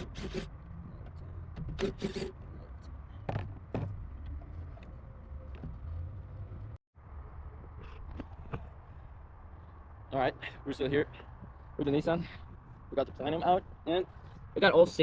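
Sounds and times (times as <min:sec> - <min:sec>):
tool scraping: 0:00.0 - 0:04.6.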